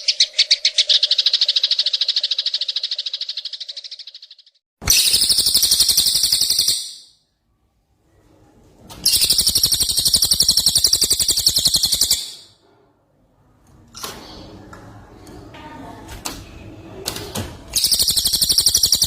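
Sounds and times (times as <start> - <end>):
bird rattling trills: 0.0 - 7.1, 9.1 - 12.4, 17.8 - 19.0.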